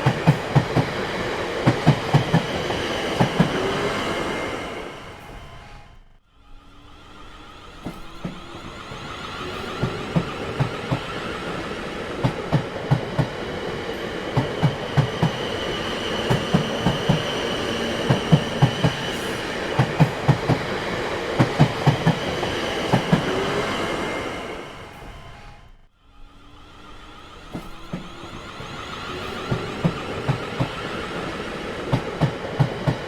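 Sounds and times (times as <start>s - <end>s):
train wheels clicking over joints: 0.0s - 5.6s, 7.6s - 25.4s, 27.3s - 33.0s.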